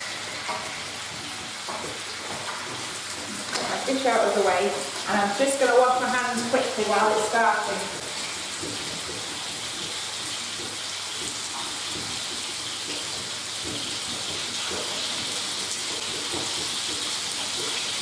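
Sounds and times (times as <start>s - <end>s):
chicken sizzling in frying pan: 0.0s - 18.0s.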